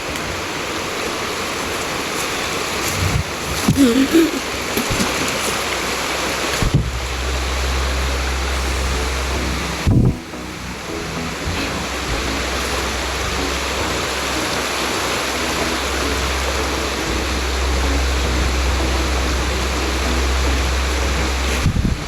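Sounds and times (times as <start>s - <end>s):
rushing water: 0.0s - 22.0s
deep rumble: 6.1s - 22.0s.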